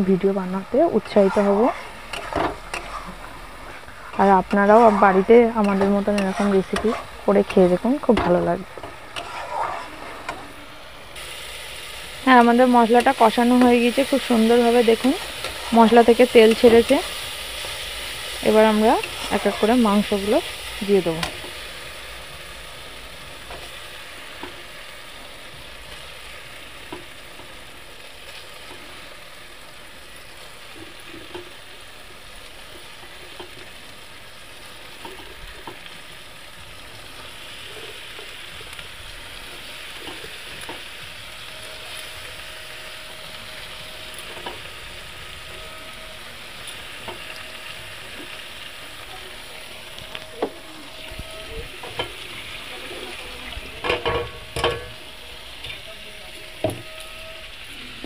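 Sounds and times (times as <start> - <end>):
food sizzling in oil: 0.0 - 58.0
metal spatula knocking pan: 53.8 - 55.0.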